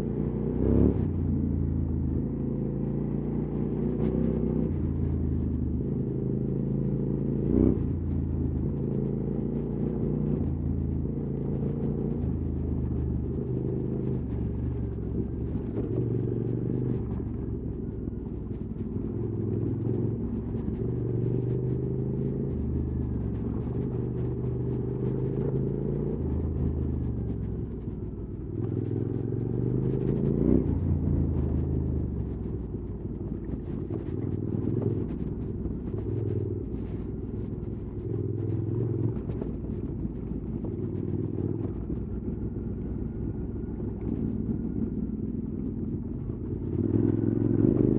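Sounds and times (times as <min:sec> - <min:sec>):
motorcycle engine revving: 0:37.4 - 0:47.9.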